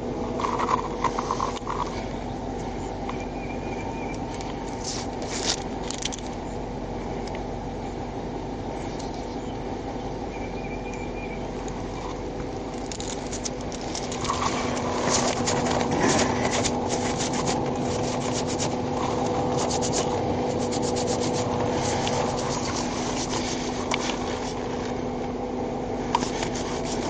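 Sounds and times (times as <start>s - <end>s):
vehicle engine and road hum: 0.0s - 27.0s
scraping and crackling: 0.3s - 2.2s, 4.3s - 6.4s, 12.0s - 25.0s, 26.1s - 27.0s.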